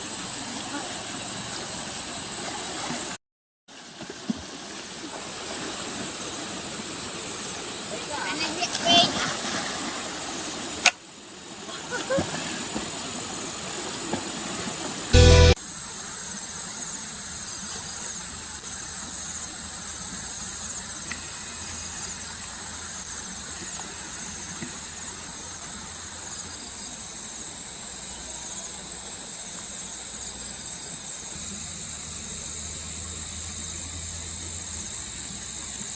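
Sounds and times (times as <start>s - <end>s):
high-pitched insect chorus: 15.6s - 35.9s.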